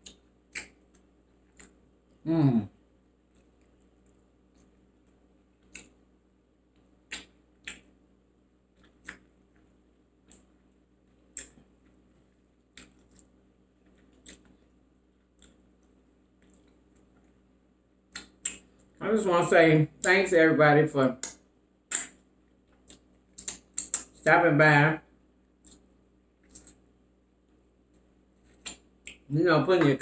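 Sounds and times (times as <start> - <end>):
crunchy chewing: 0.0 - 2.2, 3.2 - 6.1, 6.7 - 8.0, 8.7 - 17.4, 25.5 - 29.3.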